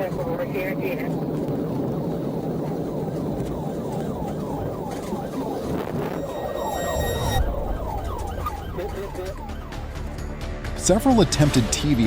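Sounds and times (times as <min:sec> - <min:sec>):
car engine and tyres rumbling: 0:00.0 - 0:10.4
police siren yelp: 0:02.5 - 0:10.2
high steady tone: 0:04.4 - 0:09.8.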